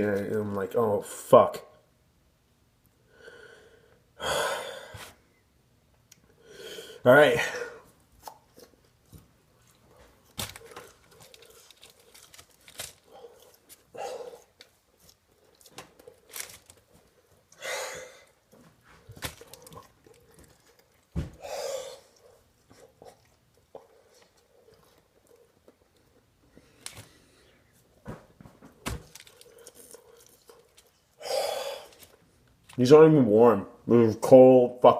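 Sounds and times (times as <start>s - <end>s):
person chewing: 8.1s - 27.6s, 28.8s - 32.8s
heavy breaths: 12.9s - 14.6s, 17.5s - 19.4s, 21.2s - 23.0s, 31.1s - 32.2s.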